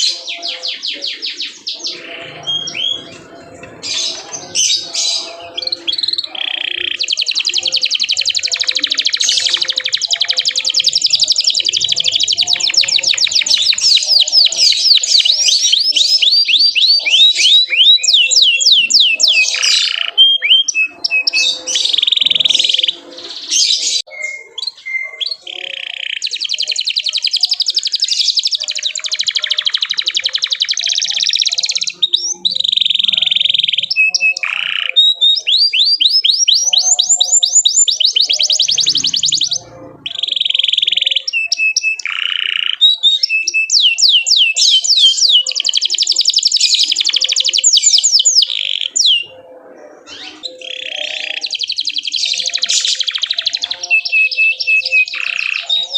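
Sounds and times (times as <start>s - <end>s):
canary singing: 0.0s - 55.9s.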